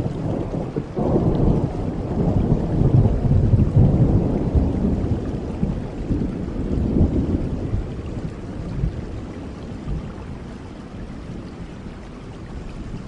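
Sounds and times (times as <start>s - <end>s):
thunder rolling: 0.0s - 10.1s
steady rain: 0.0s - 13.0s.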